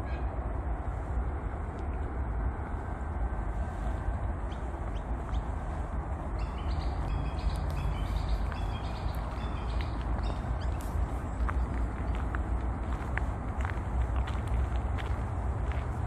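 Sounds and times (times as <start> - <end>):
steady low rumble: 0.0 - 16.0
bird chirping: 6.3 - 11.8.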